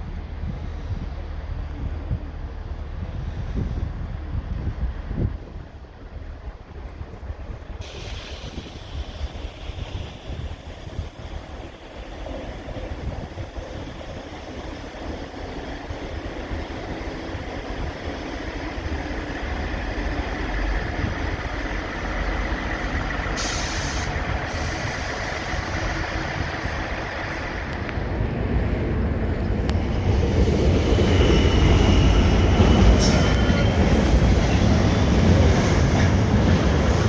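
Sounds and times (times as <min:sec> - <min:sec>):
diesel train rumbling: 0:00.0 - 0:37.0
sharp hiss of air: 0:07.8 - 0:12.1, 0:23.0 - 0:27.4.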